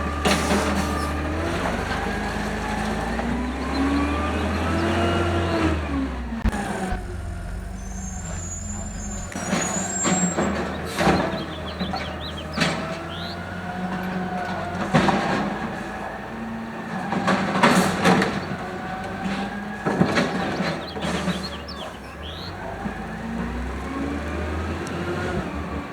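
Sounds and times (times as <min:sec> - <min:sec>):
garbage truck engine humming: 0:00.0 - 0:25.9
loud metal clanks: 0:06.4 - 0:13.4
squealing: 0:06.4 - 0:13.5
faint bird chirps: 0:06.9 - 0:13.4, 0:20.6 - 0:22.6.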